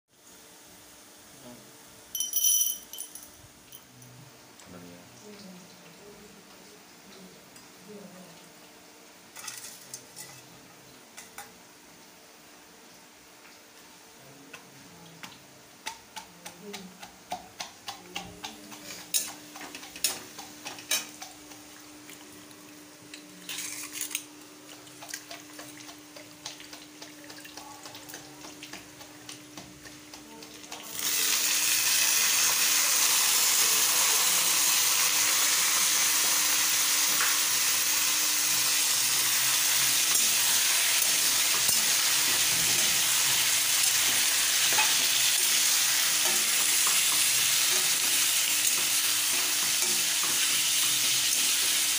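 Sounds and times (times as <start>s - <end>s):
onions frying in oil: 5.2s - 51.9s
spatula scraping and tapping pan: 15.2s - 21.7s, 46.2s - 51.8s
loud sizzle of chicken in oil: 30.7s - 51.9s.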